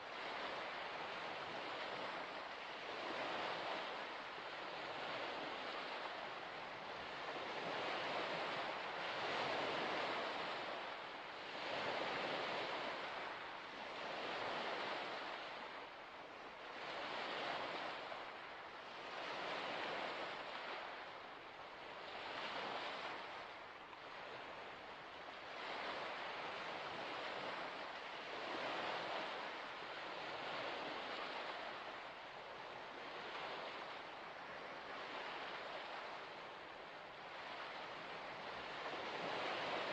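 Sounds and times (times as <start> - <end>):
small waves washing against shore: 0.0 - 39.9.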